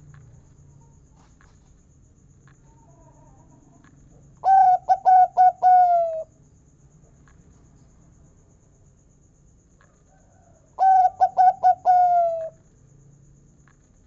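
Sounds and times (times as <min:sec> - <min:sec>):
dove cooing: 0:04.4 - 0:06.3, 0:10.8 - 0:12.6.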